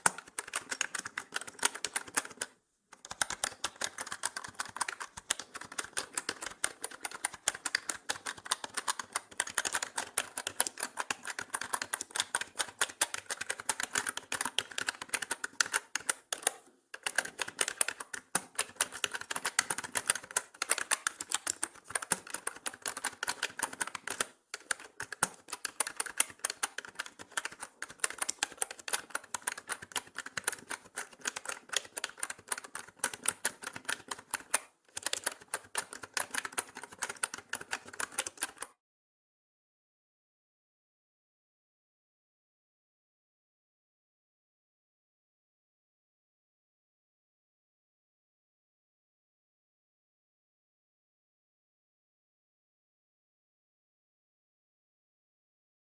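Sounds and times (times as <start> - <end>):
mechanical keyboard typing: 0.0 - 38.8.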